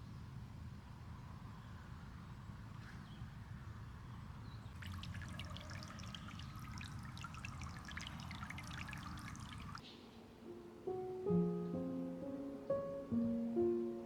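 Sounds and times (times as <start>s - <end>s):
water pouring and splashing: 4.7s - 9.8s.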